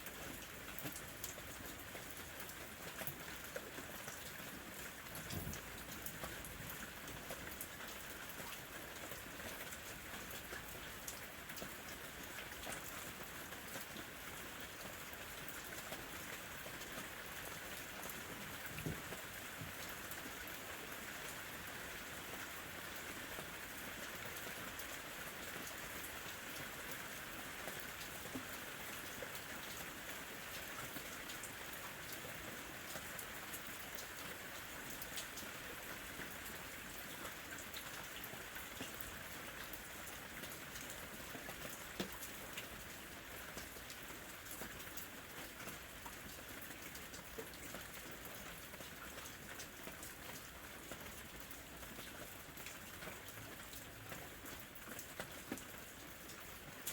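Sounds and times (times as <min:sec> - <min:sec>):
light rain falling: 0:00.0 - 0:56.9.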